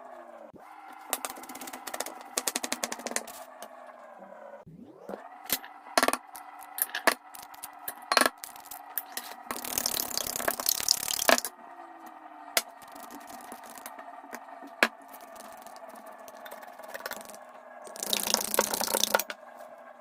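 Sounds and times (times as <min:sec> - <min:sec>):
steady hum: 0:04.6 - 0:19.7
utensils clicking and knocking: 0:05.5 - 0:11.5, 0:14.8 - 0:19.4.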